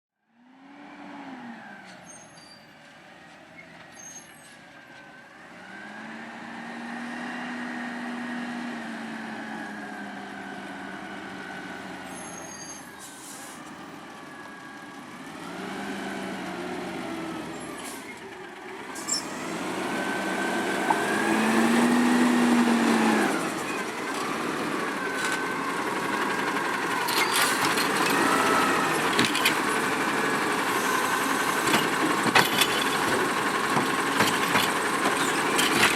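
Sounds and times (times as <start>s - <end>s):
garbage truck engine revving: 5.4s - 35.9s
air brake hisses: 12.5s - 13.7s
metal clanks: 31.6s - 35.9s.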